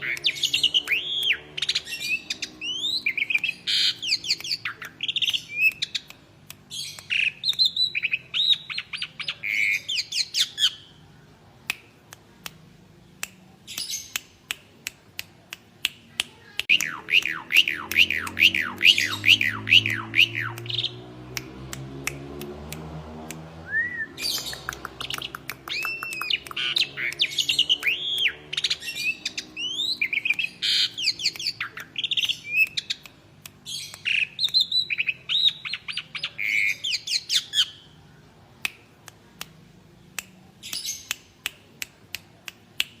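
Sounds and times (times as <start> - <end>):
starling calling: 16.8 - 21.0
bird clicks: 24.2 - 36.0.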